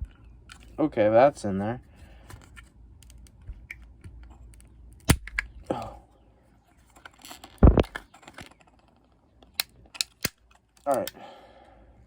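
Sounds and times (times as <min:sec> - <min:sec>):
hard parts clicking and cracking: 0:06.9 - 0:11.2.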